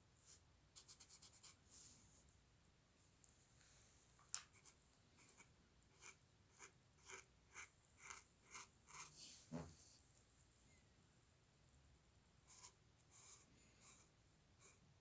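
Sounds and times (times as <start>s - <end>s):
drawing strokes scratching paper: 4.5s - 9.5s, 12.5s - 14.8s.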